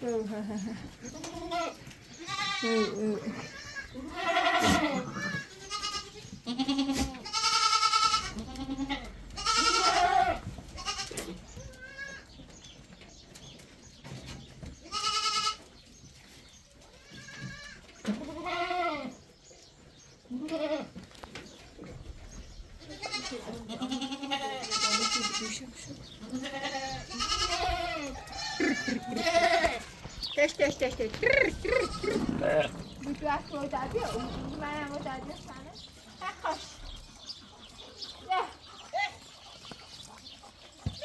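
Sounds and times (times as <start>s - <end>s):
goats bleating: 1.0s - 12.3s, 14.8s - 15.6s, 17.0s - 19.2s, 20.3s - 21.0s, 22.8s - 36.8s.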